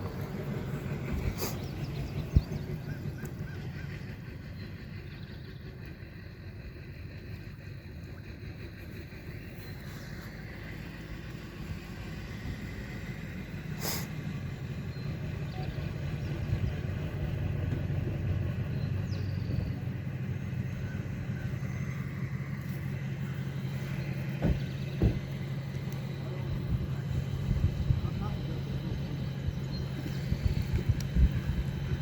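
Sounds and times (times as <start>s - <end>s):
motor engine running: 0.0s - 32.0s
knocks: 24.4s - 25.3s.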